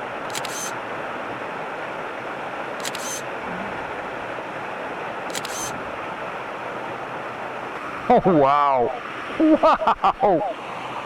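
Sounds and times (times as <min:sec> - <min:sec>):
waterfall rushing: 0:00.1 - 0:08.1
camera shutter clicks: 0:00.3 - 0:00.8, 0:02.8 - 0:03.2, 0:05.3 - 0:05.8.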